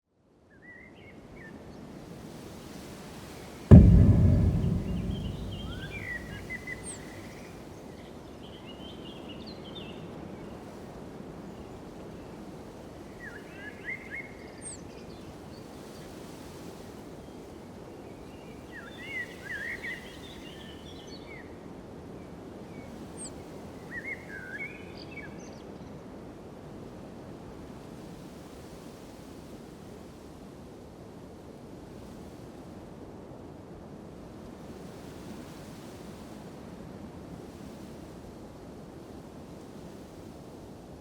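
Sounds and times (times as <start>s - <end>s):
low outdoor rumble: 3.7s - 6.8s.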